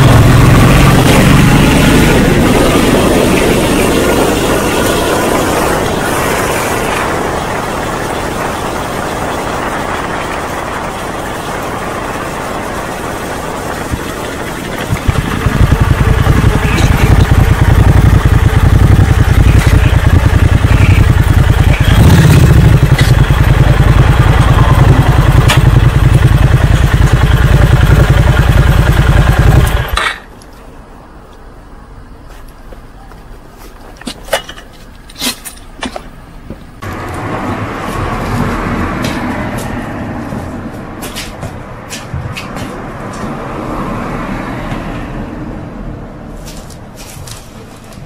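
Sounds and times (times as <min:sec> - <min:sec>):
motorcycle engine pulsing rumble: 0:00.0 - 0:30.3.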